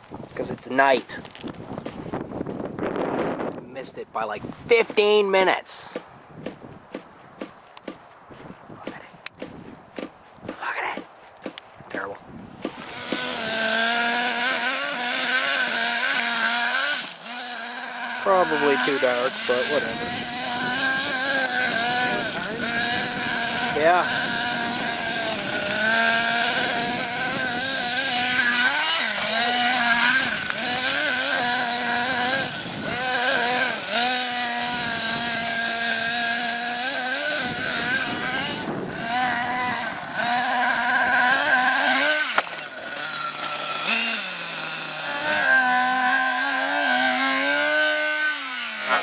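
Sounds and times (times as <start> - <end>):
nitro engine idling and revving: 11.9 - 49.0.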